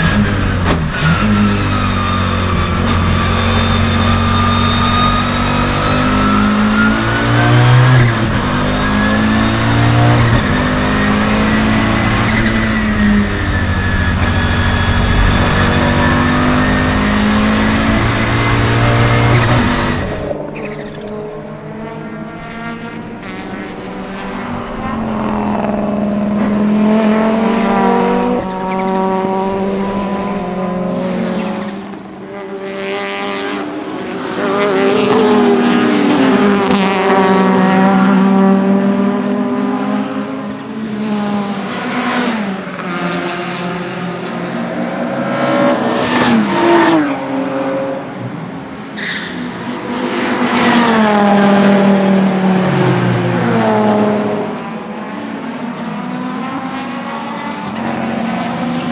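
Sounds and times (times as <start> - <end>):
turbocharged car engine revving: 0.0 - 31.9.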